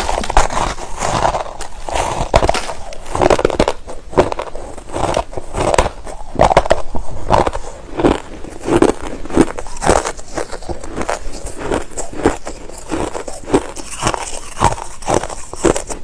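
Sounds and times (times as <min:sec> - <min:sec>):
person chewing crushed ice: 0:00.0 - 0:16.0.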